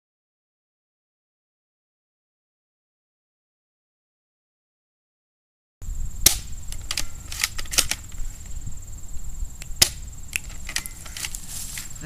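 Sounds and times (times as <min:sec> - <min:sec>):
high insect drone: 0:05.8 - 0:12.0
airsoft pistol pops: 0:06.2 - 0:08.2, 0:09.6 - 0:11.4.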